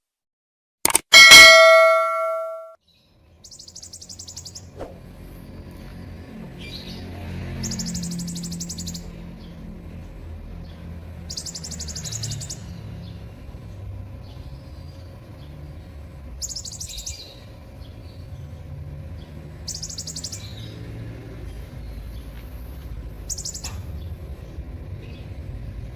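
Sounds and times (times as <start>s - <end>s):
bird singing high trills: 1.2s - 2.7s.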